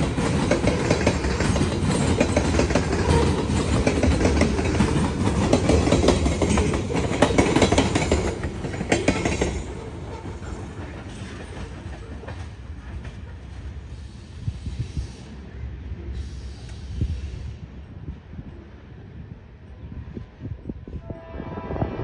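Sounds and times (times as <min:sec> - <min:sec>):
train wheels clattering over rail joints: 0:00.0 - 0:13.7.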